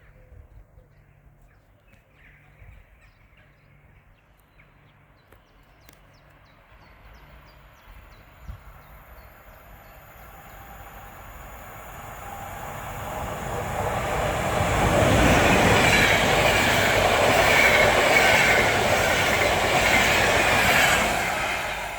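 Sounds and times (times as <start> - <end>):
electric train rail noise and whine: 6.5 - 21.9.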